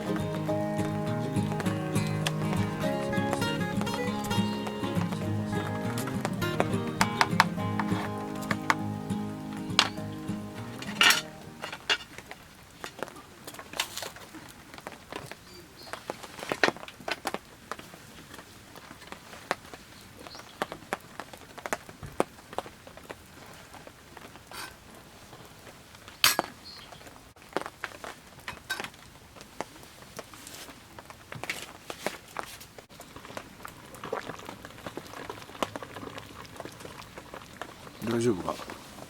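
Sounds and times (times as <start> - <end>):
cookware clinking and knocking: 9.7 - 12.1.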